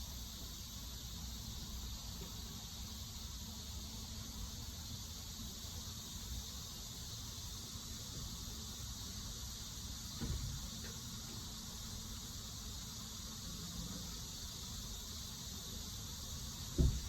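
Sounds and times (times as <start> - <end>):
insect high-pitched drone: 0.0 - 17.0
soft low bump: 16.8 - 17.0.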